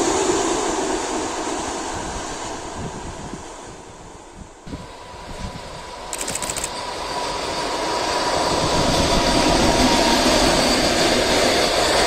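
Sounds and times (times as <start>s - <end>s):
train wheels on rails: 6.1s - 6.8s.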